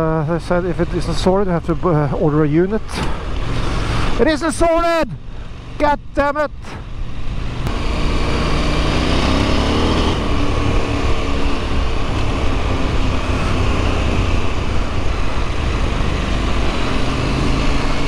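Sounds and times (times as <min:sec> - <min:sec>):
motorcycle engine running: 0:05.3 - 0:18.0.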